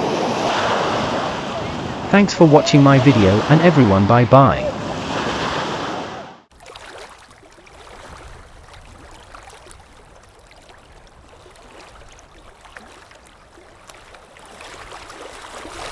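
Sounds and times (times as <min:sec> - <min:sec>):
small waves lapping: 0:00.0 - 0:15.9
small water splashes: 0:06.5 - 0:15.9.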